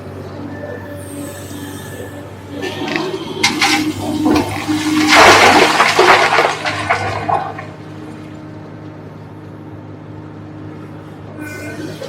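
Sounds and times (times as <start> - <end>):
excavator diesel engine running: 0.0 - 12.0
rock and earth crashing: 2.6 - 7.8.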